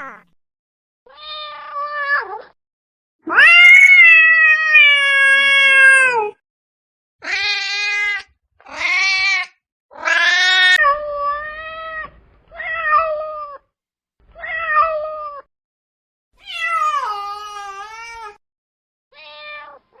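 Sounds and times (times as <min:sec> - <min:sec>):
cat meowing: 0:01.1 - 0:02.6, 0:03.3 - 0:06.4, 0:07.2 - 0:13.6, 0:14.3 - 0:15.5, 0:16.4 - 0:18.4, 0:19.1 - 0:20.0.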